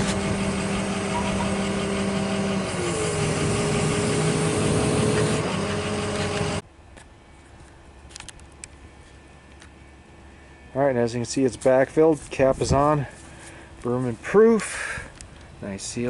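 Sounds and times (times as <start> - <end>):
engine running: 0.0 - 6.7.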